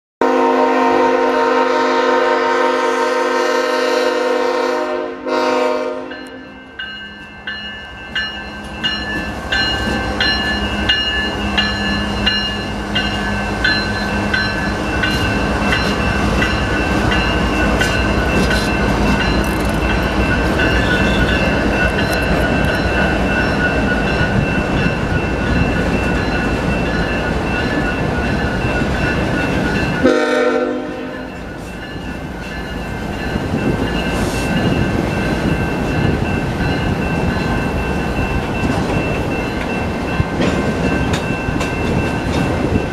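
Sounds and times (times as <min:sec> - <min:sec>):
locomotive horn blast: 0:00.2 - 0:06.4, 0:30.0 - 0:31.3
freight train rumbling on rails: 0:00.2 - 0:42.9
crossing bell ringing: 0:05.3 - 0:42.9.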